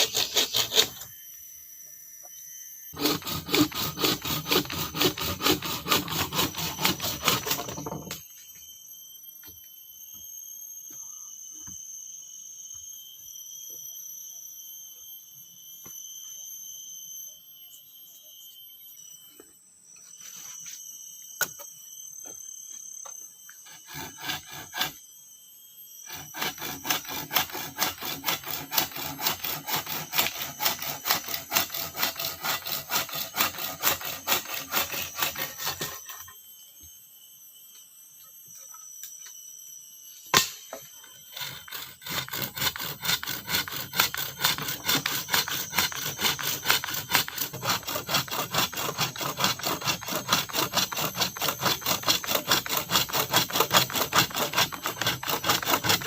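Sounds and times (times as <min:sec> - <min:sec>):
hand saw cutting wood: 0:00.0 - 0:01.1, 0:03.0 - 0:08.2, 0:23.6 - 0:25.0, 0:26.0 - 0:36.2, 0:41.3 - 0:56.0
insects buzzing: 0:00.0 - 0:56.0.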